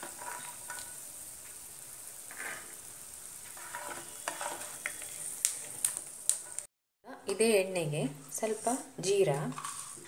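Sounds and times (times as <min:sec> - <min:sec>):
spatula scraping a pan: 0:00.0 - 0:01.6, 0:02.2 - 0:06.6, 0:08.2 - 0:10.0
peanuts sizzling in hot oil: 0:00.0 - 0:06.7, 0:07.5 - 0:10.0.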